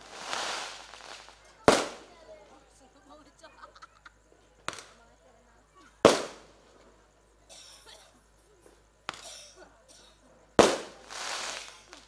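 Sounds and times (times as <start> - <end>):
firework bangs: 0.0 - 2.4, 4.7 - 5.0, 6.0 - 6.7, 9.1 - 9.6, 10.6 - 12.0
firework crackle: 0.0 - 2.8, 4.6 - 5.0, 6.0 - 6.8, 9.0 - 9.6, 10.6 - 12.0.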